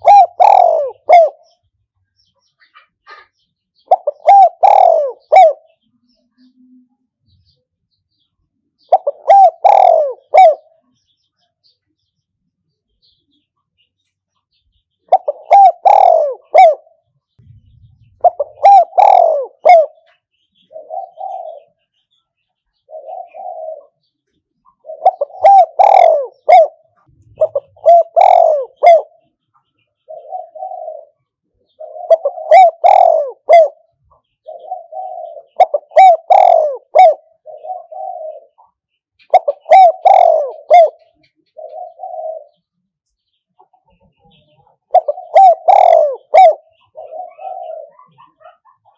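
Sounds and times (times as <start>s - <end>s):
dove cooing: 0.0s - 1.6s, 2.7s - 5.8s, 8.8s - 10.8s, 15.1s - 22.0s, 22.8s - 24.1s, 24.7s - 29.3s, 30.0s - 42.7s, 43.6s - 48.9s.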